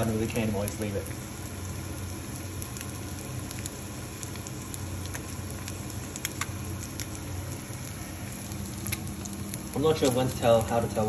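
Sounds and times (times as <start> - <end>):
egg frying in hot oil: 0.0 - 11.0
oil popping: 2.2 - 10.8.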